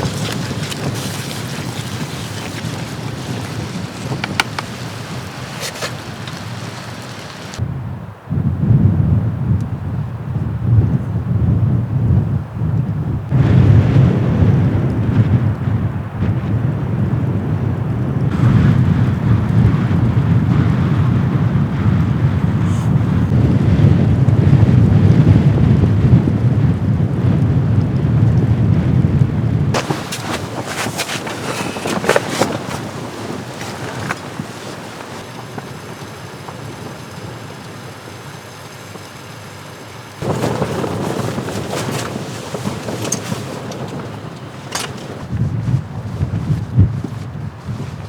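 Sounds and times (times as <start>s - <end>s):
strong wind on microphone: 0.0s - 48.0s
knocks and rattles: 40.2s - 45.3s.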